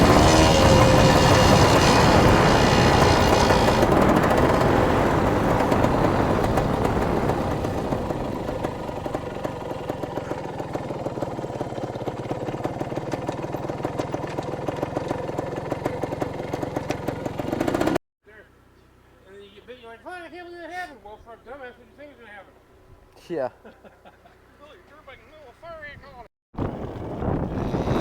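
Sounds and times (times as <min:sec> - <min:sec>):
dirt bike engine running: 0:00.0 - 0:18.0, 0:26.6 - 0:28.0.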